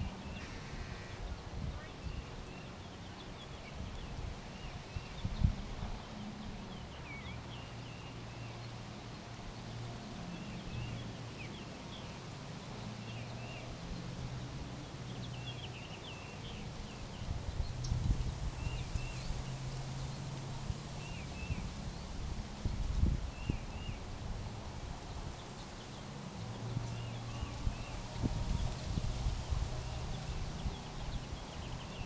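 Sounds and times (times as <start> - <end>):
small birds chirping: 0.0 - 24.1.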